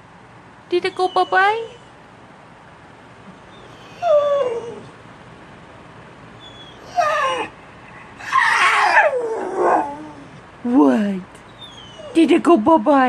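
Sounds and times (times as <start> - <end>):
dog whine-howling: 3.5 - 4.9, 6.4 - 7.6, 8.2 - 10.4.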